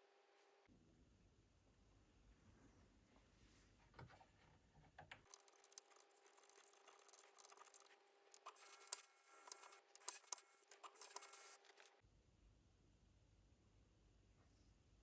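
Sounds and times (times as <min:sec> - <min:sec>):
faint clicks and taps: 0:05.0 - 0:12.0.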